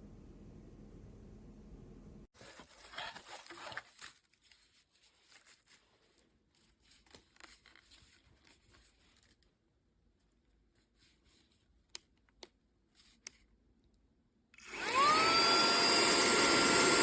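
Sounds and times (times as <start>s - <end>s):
faint rustling and handling: 1.9s - 14.0s.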